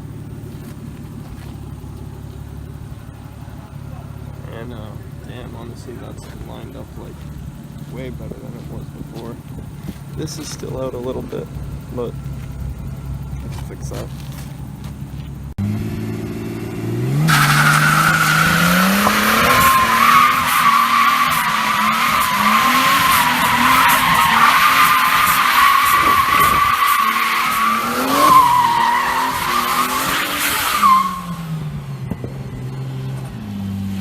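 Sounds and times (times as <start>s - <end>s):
car engine revving: 0.0s - 34.0s
tyres squealing: 17.2s - 31.6s.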